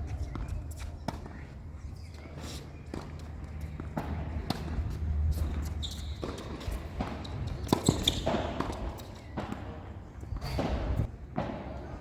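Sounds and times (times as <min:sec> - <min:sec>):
tennis ball bouncing and struck: 0:03.8 - 0:11.8.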